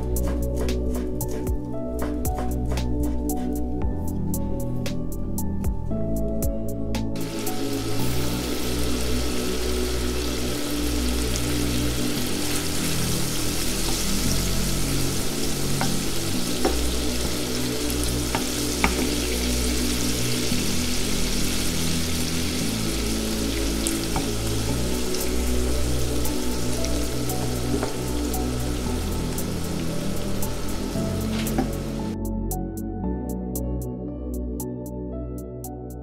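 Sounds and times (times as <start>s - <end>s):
wooden spoon stirring: 0.0s - 3.7s, 11.3s - 20.8s, 23.5s - 32.0s
background music with low notes: 0.0s - 36.0s
shrimp sizzling in frying pan: 7.2s - 32.2s.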